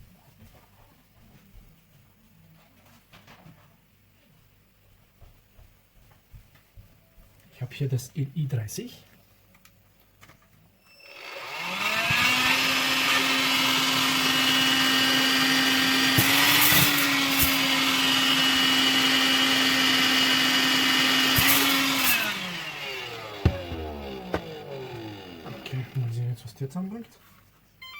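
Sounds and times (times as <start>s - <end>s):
vacuum cleaner motor running: 11.1s - 26.1s
vacuum cleaner clicks: 23.2s - 25.7s.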